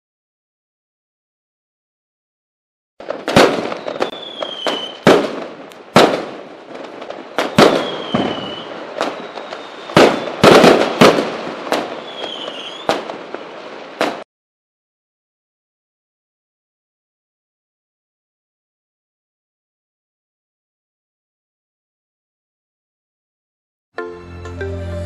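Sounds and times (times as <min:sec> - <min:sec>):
fireworks bangs with crackle: 0:03.0 - 0:14.3
firework whistles falling in pitch: 0:03.3 - 0:05.2, 0:07.4 - 0:11.2, 0:11.9 - 0:13.1.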